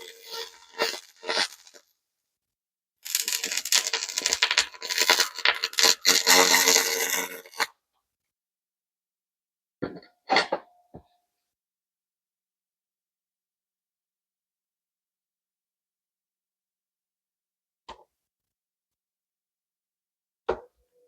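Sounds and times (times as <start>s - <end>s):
laser crackling hiss: 3.1s - 7.6s.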